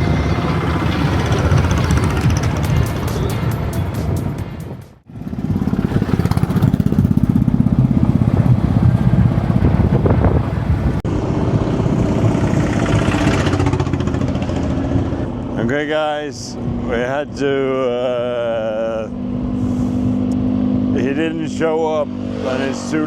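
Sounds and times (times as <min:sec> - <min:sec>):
motorcycle engine running: 0:00.0 - 0:15.5.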